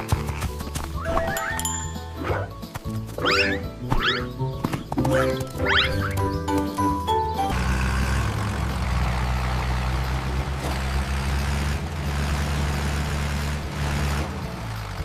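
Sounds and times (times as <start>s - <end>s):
music: 0.0s - 7.6s, 13.8s - 15.0s
heavy vehicle engine droning: 7.1s - 15.0s.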